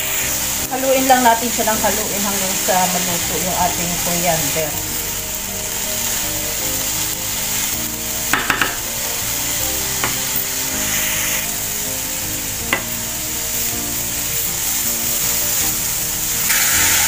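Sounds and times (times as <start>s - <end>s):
herbs sizzling in a frying pan: 0.0s - 17.0s
spatula knocking against a pan: 8.4s - 8.8s.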